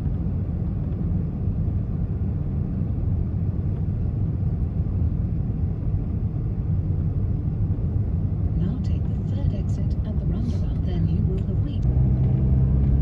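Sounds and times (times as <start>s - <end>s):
road and engine rumble: 0.0s - 13.0s.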